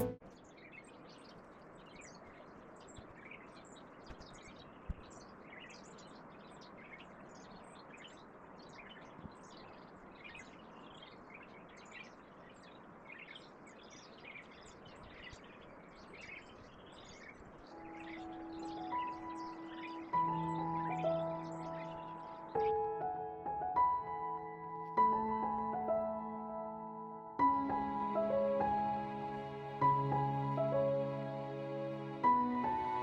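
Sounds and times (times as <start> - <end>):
birds chirping: 0.0 - 33.0
steady low hiss: 0.0 - 33.0.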